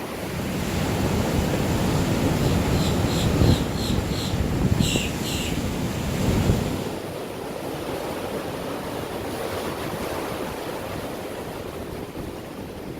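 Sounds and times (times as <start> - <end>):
wind buffeting microphone: 0.1 - 8.4.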